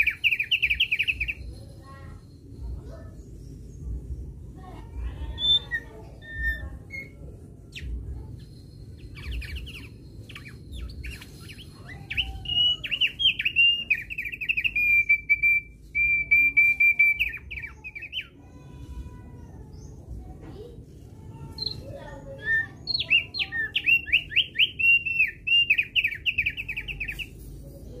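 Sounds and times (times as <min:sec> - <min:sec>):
bird chirping and whistling: 0:00.0 - 0:01.6, 0:05.2 - 0:18.4, 0:21.5 - 0:27.4
low background rumble: 0:01.2 - 0:15.0.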